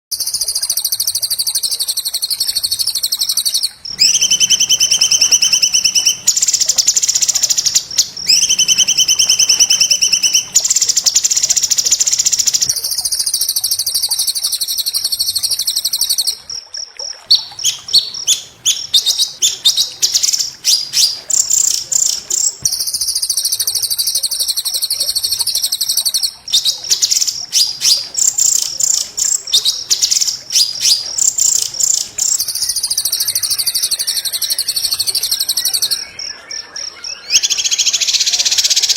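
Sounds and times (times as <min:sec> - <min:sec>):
bird rapid choppy notes: 0:00.1 - 0:15.8
songbird fast harsh trills: 0:00.1 - 0:16.4, 0:17.3 - 0:38.9.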